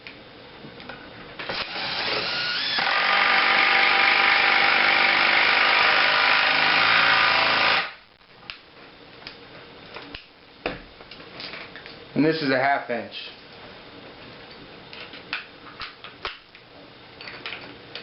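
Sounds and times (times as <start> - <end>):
impact driver motor spinning up: 1.5 - 5.7.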